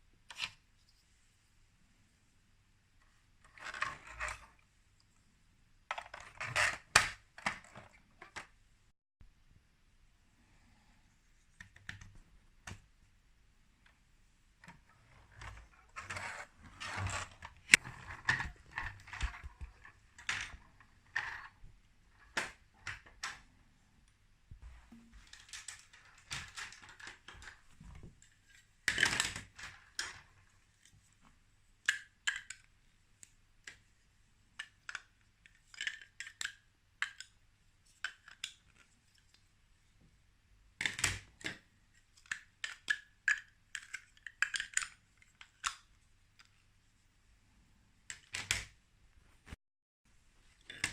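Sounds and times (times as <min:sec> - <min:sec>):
plastic toy pieces clicking: 0:34.6 - 0:37.4, 0:40.8 - 0:45.9.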